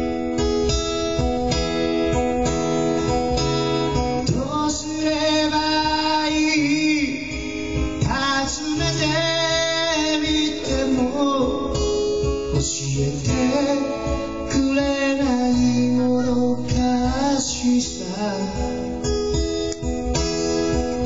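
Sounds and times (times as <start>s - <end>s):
acoustic guitar strumming: 0.0s - 21.0s
person singing: 4.2s - 12.0s, 12.6s - 18.8s.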